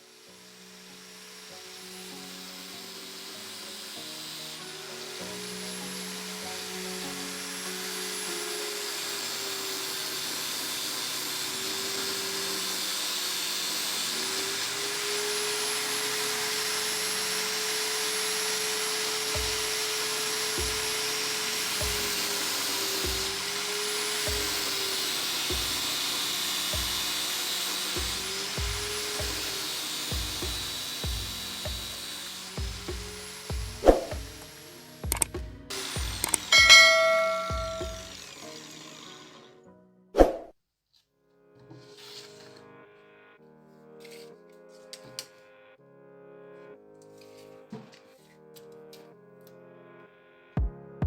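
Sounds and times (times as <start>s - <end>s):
power tool motor whining: 0.0s - 39.6s.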